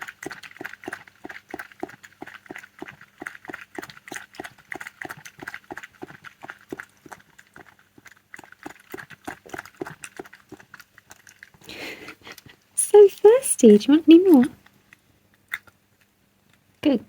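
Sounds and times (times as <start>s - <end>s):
fox lapping water: 0.0s - 12.8s.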